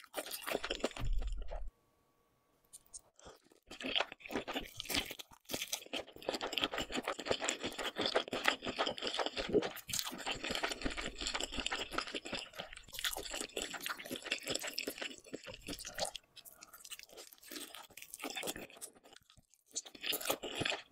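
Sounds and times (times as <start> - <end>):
crackly mouth clicks from chewing: 2.7 - 20.9.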